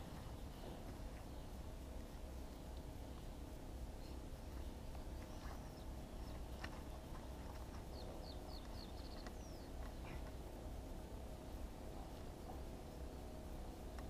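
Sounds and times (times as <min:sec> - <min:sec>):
faint high bird chirps: 0:04.0 - 0:10.5.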